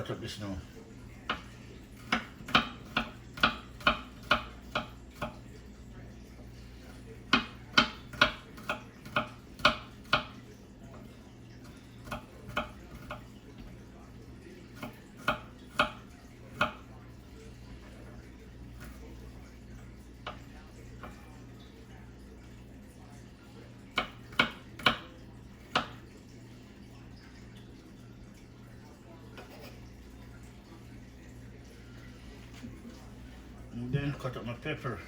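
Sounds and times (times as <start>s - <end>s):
knife chopping on cutting board: 1.3s - 5.4s, 7.3s - 10.4s, 14.8s - 16.8s, 24.0s - 25.1s.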